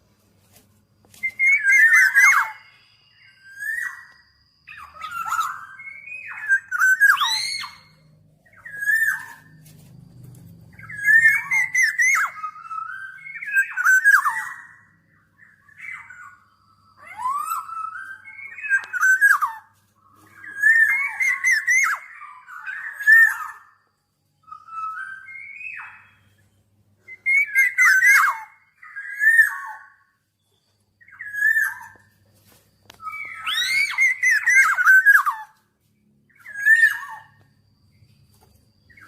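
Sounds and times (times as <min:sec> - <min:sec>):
bird singing fluty whistles: 0:01.1 - 0:39.0.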